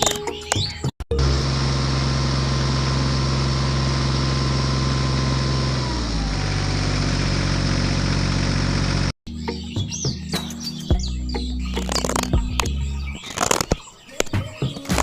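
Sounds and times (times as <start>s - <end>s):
engine running: 1.1s - 9.6s.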